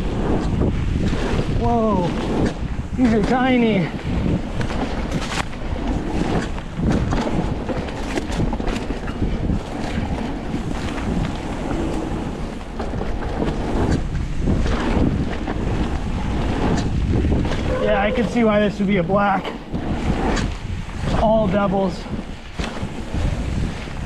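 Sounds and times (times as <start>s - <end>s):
bike knocks and rattles: 0.0s - 24.0s
constant low rumble: 0.0s - 24.0s
wind buffeting microphone: 0.0s - 24.0s.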